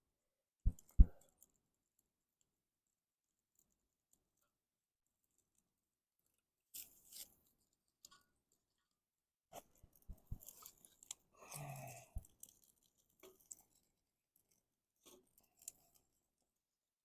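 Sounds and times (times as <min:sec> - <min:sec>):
twigs crackling and snapping: 0:10.0 - 0:16.1.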